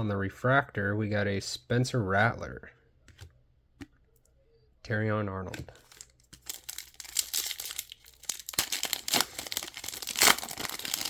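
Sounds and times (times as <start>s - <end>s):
trading cards rustling and crinkling: 5.5s - 11.0s.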